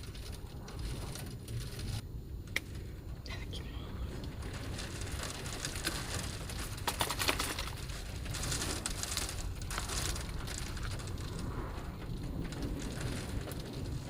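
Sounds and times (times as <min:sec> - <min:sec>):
rain beating on van body: 0:00.0 - 0:14.0.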